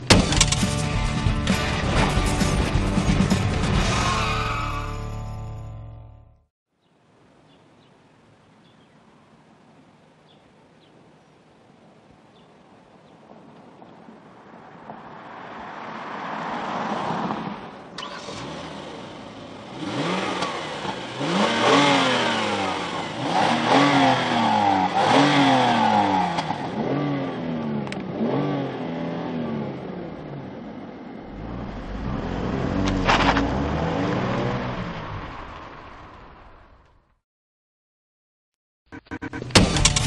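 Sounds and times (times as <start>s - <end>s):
car engine revving: 15.3s - 30.6s, 31.2s - 36.8s, 38.9s - 40.0s.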